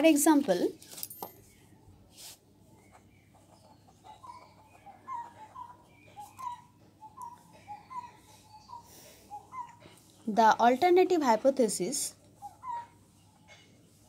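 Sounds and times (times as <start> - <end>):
bird chirping faintly: 2.6 - 10.4.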